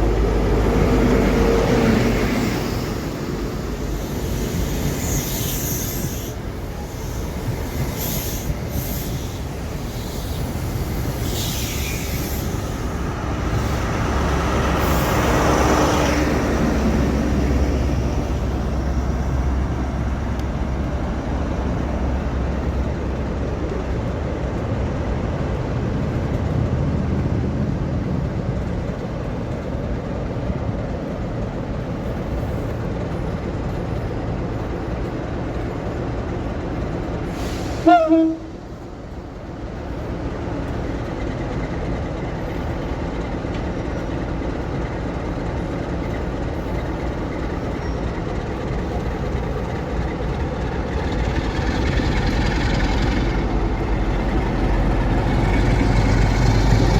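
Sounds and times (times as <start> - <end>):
train rumbling: 0.0 - 56.9
train horn blast: 37.7 - 38.7.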